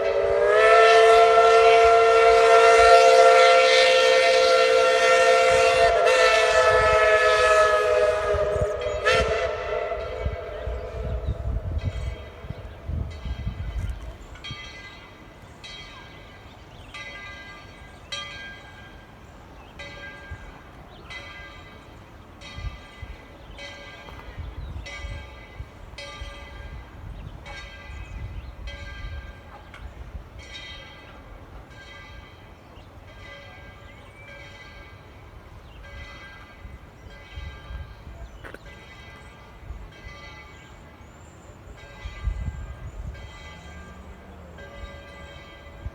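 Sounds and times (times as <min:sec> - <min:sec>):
low train rumble: 0:00.0 - 0:45.9
locomotive bell ringing: 0:08.4 - 0:19.2, 0:19.8 - 0:29.8, 0:30.4 - 0:41.0, 0:41.6 - 0:45.9.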